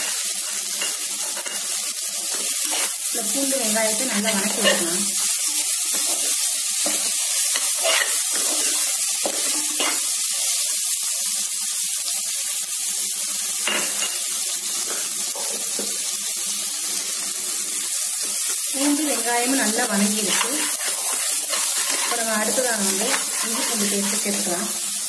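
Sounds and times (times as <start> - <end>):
shallots and garlic sizzling in oil: 0.0 - 25.0
metal spoon scraping pot: 6.9 - 8.8, 20.2 - 24.4.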